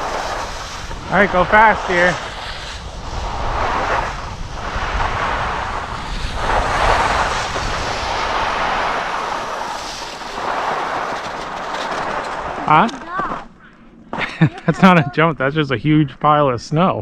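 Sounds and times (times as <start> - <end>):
skis hissing and scraping on snow: 0.0 - 13.4
wind rumbling on microphone: 0.0 - 13.6.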